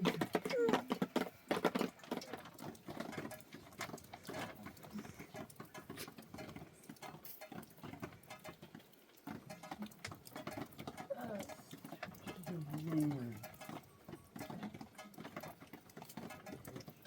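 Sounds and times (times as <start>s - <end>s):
patter of light taps and clicks: 0.0s - 17.0s.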